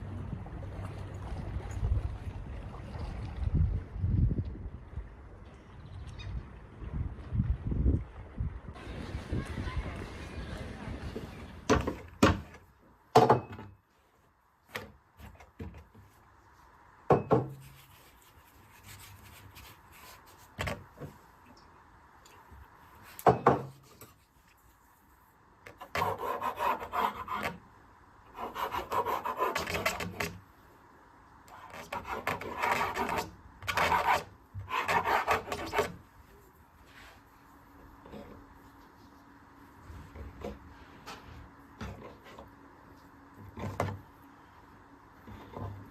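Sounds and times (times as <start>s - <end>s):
rasping scraping: 31.6s - 36.0s.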